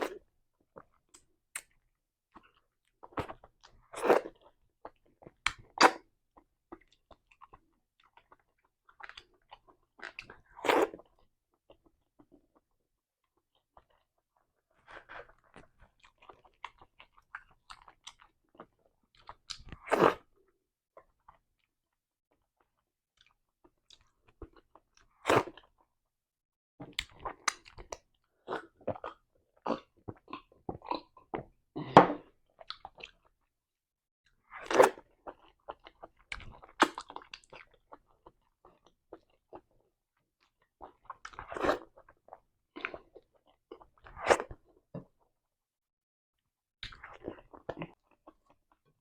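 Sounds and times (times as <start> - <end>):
wet chewing and smacking: 14.9 - 20.3, 26.8 - 31.5, 34.6 - 39.8, 46.8 - 48.9.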